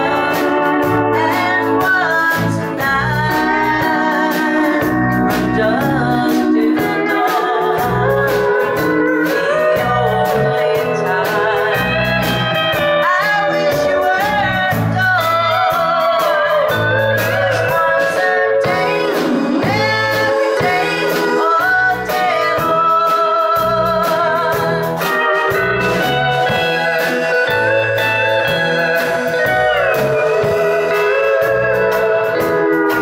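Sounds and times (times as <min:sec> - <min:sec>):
live country band music: 0:00.0 - 0:33.0.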